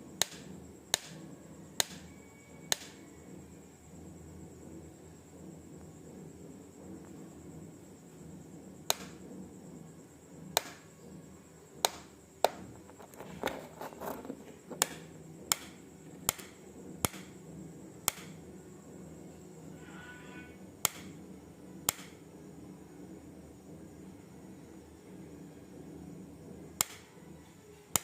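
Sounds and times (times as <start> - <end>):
insect clicking: 1.8 - 2.0, 8.9 - 9.2, 14.8 - 17.3, 18.0 - 18.4, 20.8 - 21.2, 21.9 - 22.2, 26.8 - 27.0.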